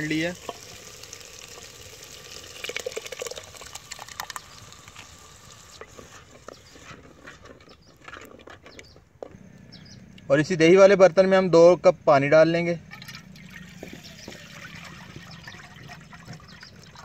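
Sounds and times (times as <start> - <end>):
oil sizzling in a pot: 0.0 - 7.0
yogurt poured and stirred: 0.0 - 7.3, 12.9 - 17.0.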